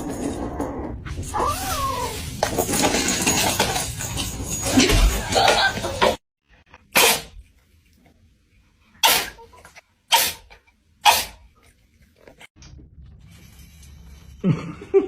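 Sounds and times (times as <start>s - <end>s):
pet sneezing: 6.9s - 7.4s, 9.0s - 11.5s.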